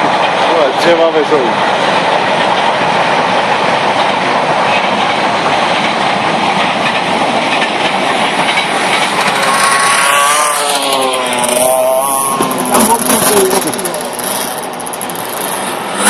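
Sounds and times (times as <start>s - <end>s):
loud rushing engine noise: 0.0s - 16.0s
motocross bike engine revving: 9.0s - 16.0s.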